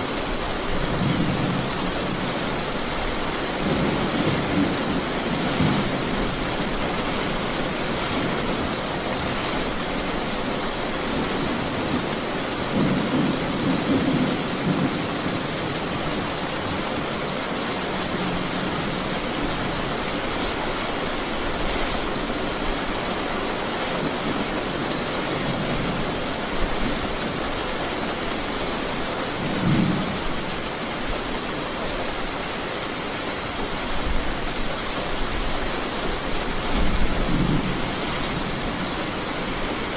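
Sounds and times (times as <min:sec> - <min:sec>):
rain falling: 0:00.0 - 0:39.9
thunder rumbling: 0:10.7 - 0:17.1, 0:29.3 - 0:30.6, 0:36.6 - 0:39.9.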